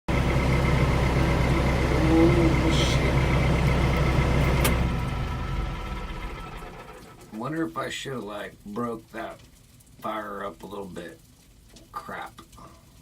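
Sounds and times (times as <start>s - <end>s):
engine idling: 0.1s - 7.3s.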